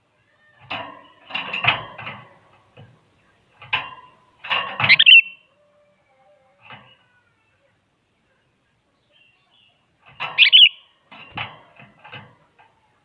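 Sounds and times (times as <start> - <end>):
bird chattering calls: 4.9 - 5.4, 10.4 - 10.9.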